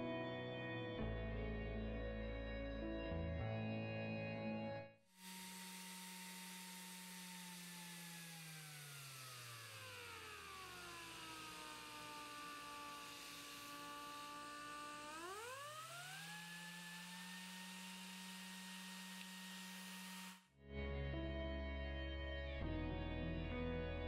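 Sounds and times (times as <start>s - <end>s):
air sander whining: 5.1s - 20.5s.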